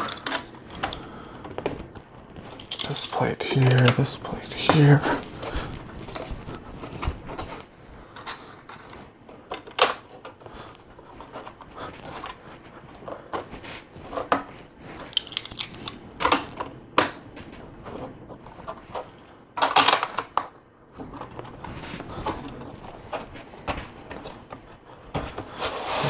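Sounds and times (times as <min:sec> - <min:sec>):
plastic bricks clattering: 0:02.4 - 0:07.6, 0:14.1 - 0:17.2, 0:18.6 - 0:20.5
plastic bricks clicking: 0:15.1 - 0:17.2.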